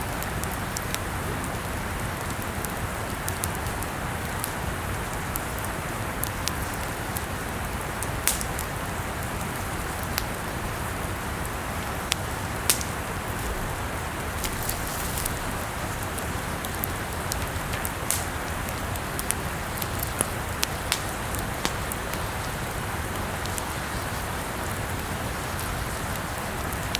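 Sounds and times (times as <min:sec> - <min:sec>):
burning wood popping: 0:00.1 - 0:26.9
fire hissing: 0:00.4 - 0:26.9.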